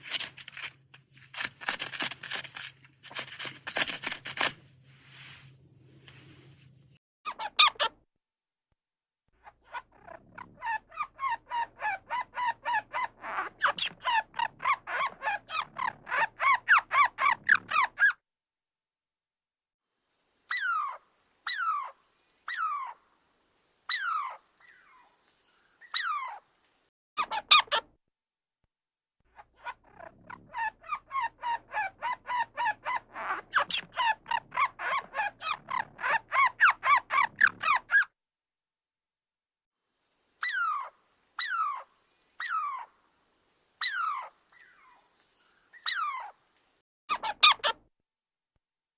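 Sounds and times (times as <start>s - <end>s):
animal squawking calls: 20.5s - 23.0s, 23.9s - 25.1s, 25.8s - 26.4s, 40.4s - 42.9s, 43.8s - 45.1s, 45.8s - 46.4s.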